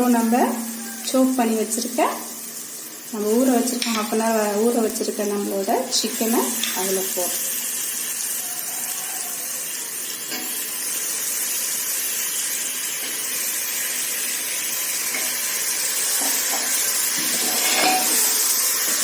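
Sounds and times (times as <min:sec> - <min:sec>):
chicken sizzling in hot oil: 0:00.0 - 0:19.0
spoon clattering and stirring: 0:16.2 - 0:19.0.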